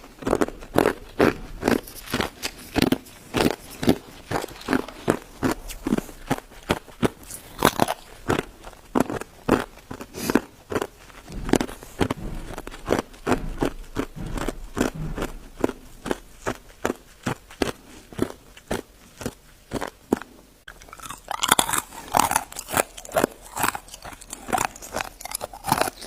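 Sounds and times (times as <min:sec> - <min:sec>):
ice being chewed: 0:00.0 - 0:26.0.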